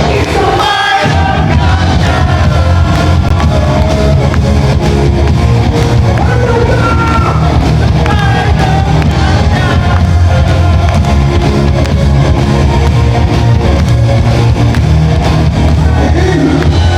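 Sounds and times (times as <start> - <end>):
person singing: 0.0 - 4.6, 6.1 - 11.7
rock band playing loudly: 0.0 - 16.9.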